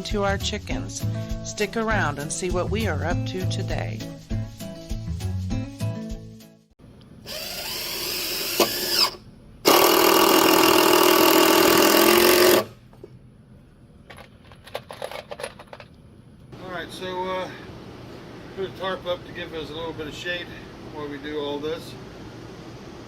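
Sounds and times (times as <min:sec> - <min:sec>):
power tool whining: 0:07.3 - 0:12.8.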